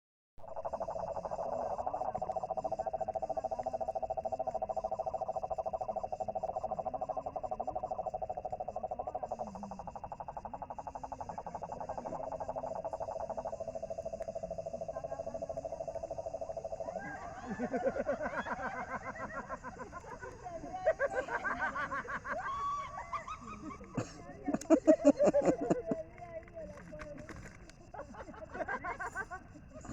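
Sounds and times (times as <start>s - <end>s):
high-pitched insect drone: 0.4s - 24.1s
frogs trilling: 0.4s - 29.9s.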